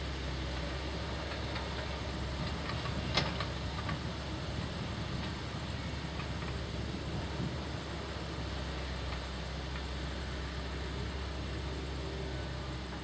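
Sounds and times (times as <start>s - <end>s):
heavy diesel machinery running: 0.0s - 13.0s
light clicks and knocks: 1.2s - 4.1s.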